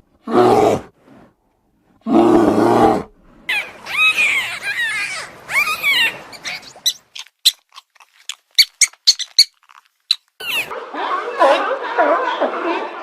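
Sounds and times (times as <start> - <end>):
animal squealing and chirping: 3.5 - 10.7.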